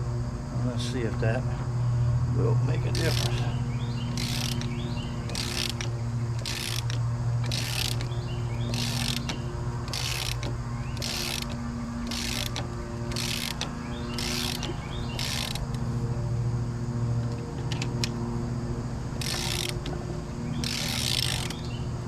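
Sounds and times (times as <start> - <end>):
low electrical hum: 0.0 - 22.0
hand pump scratchy rasps: 2.9 - 15.9, 19.2 - 22.0.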